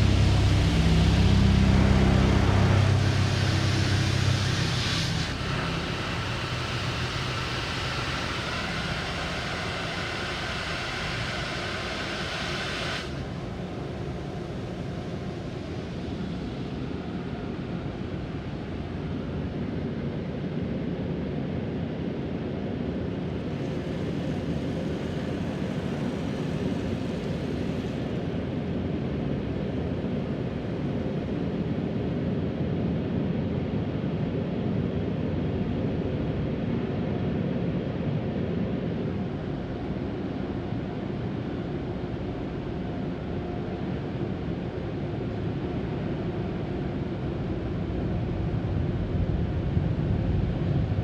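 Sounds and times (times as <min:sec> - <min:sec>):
car wash spray and blowers: 0:00.0 - 0:19.4, 0:23.4 - 0:28.8.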